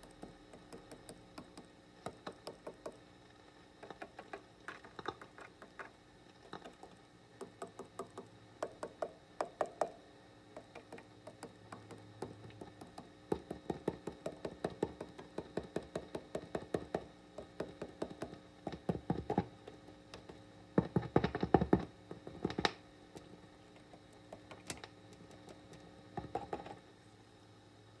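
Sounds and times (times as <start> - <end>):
sharp clicks and knocks through amp speaker: 0.0 - 3.0, 10.6 - 22.8
faint amp hum and hiss: 0.0 - 28.0.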